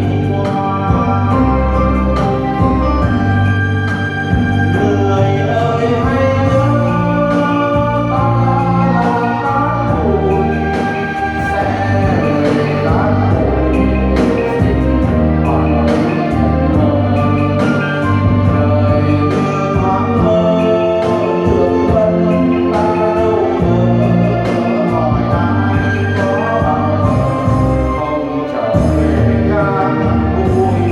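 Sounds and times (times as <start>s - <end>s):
bass line: 0.0s - 30.9s
held instrumental chords: 0.0s - 30.9s
person singing: 0.0s - 30.9s.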